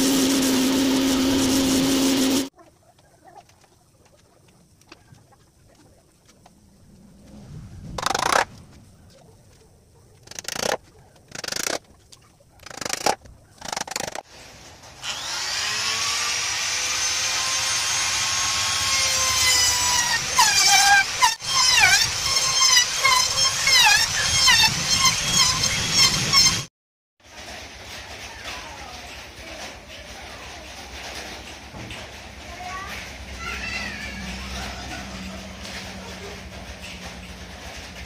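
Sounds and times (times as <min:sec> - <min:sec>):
power tool whining into wood: 0:14.8 - 0:26.7.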